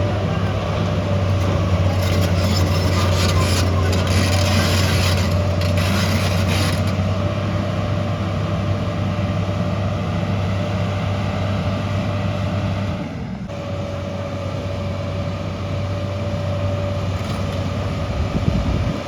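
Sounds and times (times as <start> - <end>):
heavy machine engine running: 0.0 - 19.0
rasping scrape: 0.8 - 7.1.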